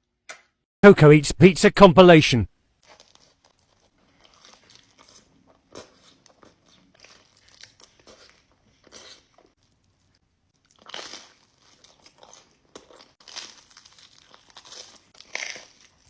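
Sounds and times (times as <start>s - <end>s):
crunchy bites and chewing: 2.8s - 16.0s.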